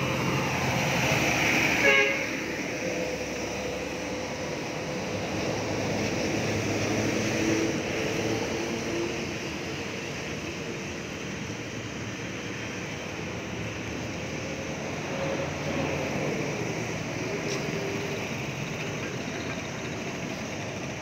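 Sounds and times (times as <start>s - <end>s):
vehicle engine passing by: 0.0s - 9.5s.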